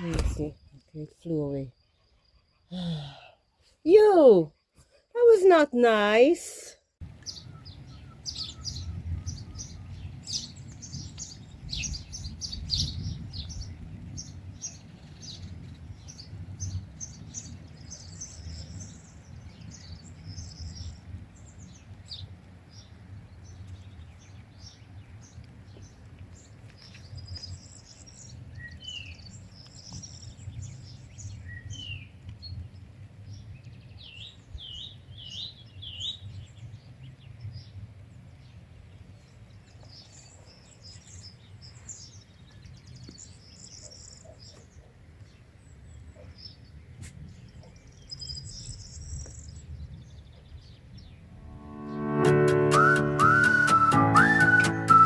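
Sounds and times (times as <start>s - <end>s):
small birds chirping: 0.0s - 55.0s
bird rising whistles: 52.4s - 55.0s.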